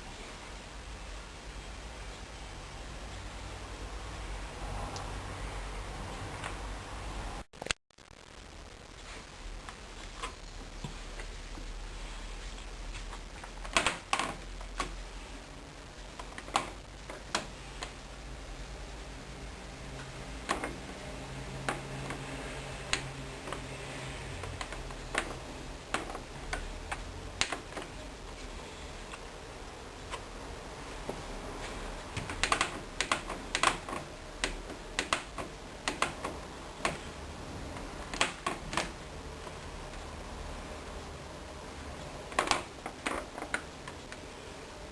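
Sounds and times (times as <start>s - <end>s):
sharp clicks of buttons and dial: 32.1s - 37.1s, 37.7s - 40.1s, 42.3s - 44.3s.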